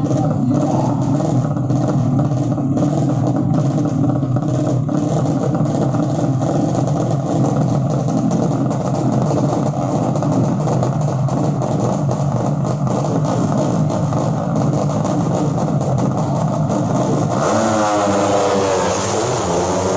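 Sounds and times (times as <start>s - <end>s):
racing motorcycle engines: 0.0s - 19.9s.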